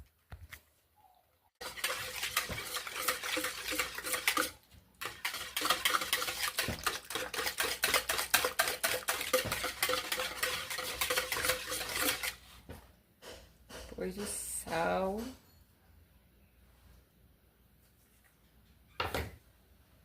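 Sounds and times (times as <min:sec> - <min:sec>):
utensil beating in mixing bowl: 0:01.6 - 0:12.5.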